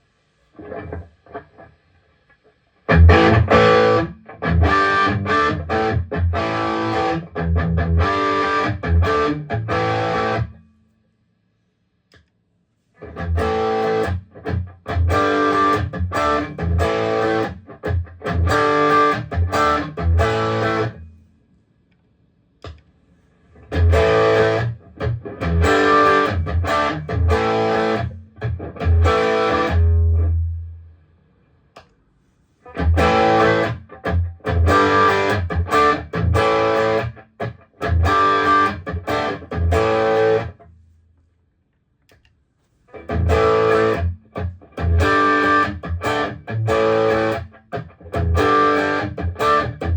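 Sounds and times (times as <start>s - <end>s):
distorted electric guitar riff: 0.6s - 1.7s, 2.9s - 10.6s, 13.0s - 21.0s, 23.6s - 30.6s, 32.7s - 40.6s, 42.9s - 49.9s
soft plucked guitar notes: 2.9s - 10.6s.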